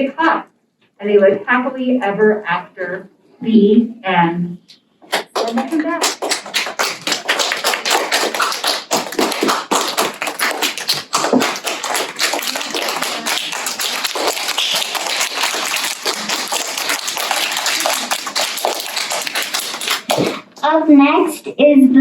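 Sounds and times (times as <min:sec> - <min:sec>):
audience clapping: 0:05.1 - 0:20.5.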